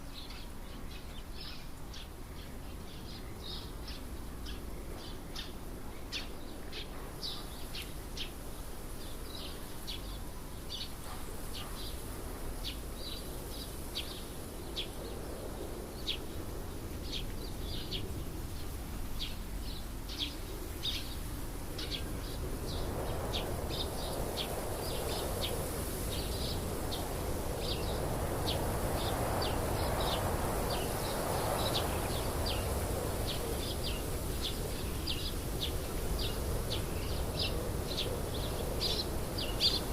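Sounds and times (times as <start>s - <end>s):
outdoor background noise: 0.0s - 39.9s
bird chirping: 21.8s - 39.9s.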